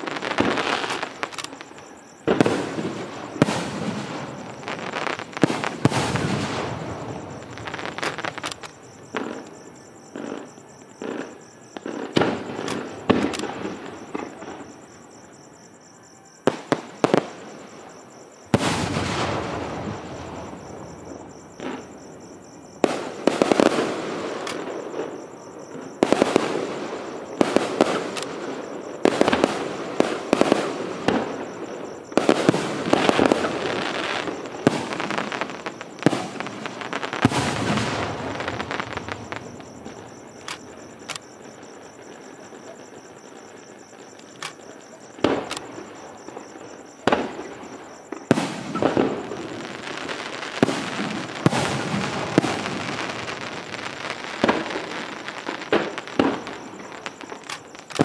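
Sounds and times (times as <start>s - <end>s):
firework shells bursting: 0.0s - 9.6s, 10.2s - 14.6s, 29.0s - 58.0s.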